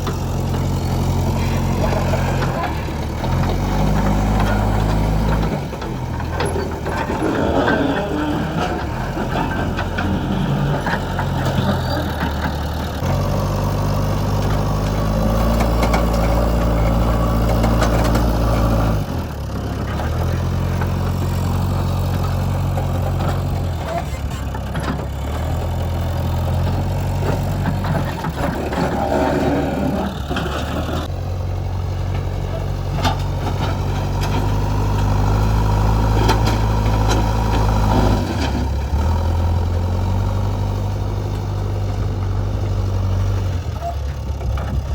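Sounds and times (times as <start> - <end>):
rough clattering: 0.0 - 13.2, 13.9 - 19.1, 19.8 - 31.1
diesel engine working under load: 0.0 - 44.9.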